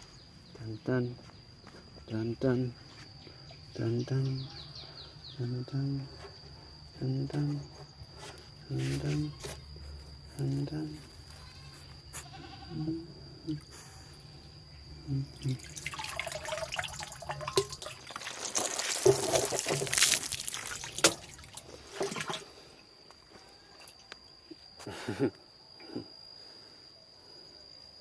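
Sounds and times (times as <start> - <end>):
shower water splashing on dog: 15.4 - 22.3.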